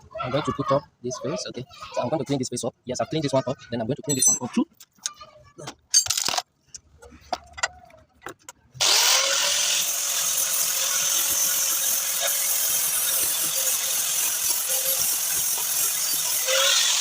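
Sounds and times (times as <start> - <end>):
electric power tool running: 8.8 - 17.0.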